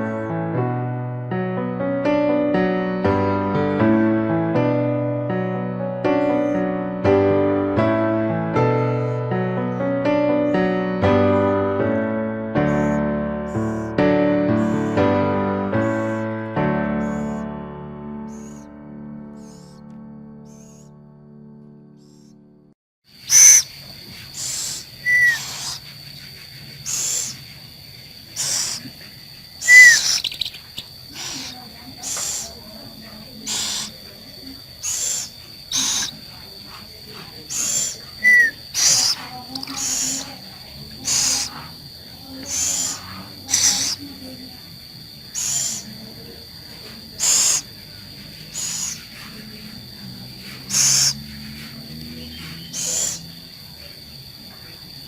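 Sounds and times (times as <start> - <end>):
owl raspy hissing calls: 6.2 - 6.7, 8.8 - 12.0, 12.6 - 17.5, 18.3 - 18.7, 19.3 - 19.8, 20.4 - 20.9, 22.0 - 22.4, 23.2 - 27.6, 28.2 - 32.7, 33.3 - 44.4, 45.2 - 53.5.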